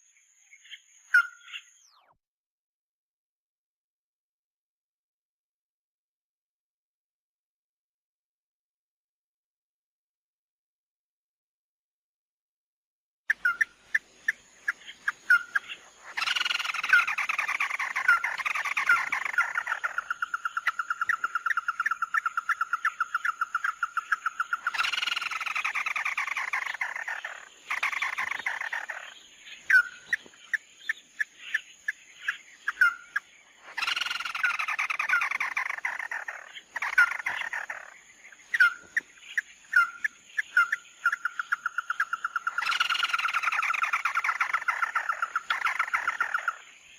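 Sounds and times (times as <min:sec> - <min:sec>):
bird song with fast trill: 0:00.0 - 0:02.2, 0:13.3 - 0:46.9.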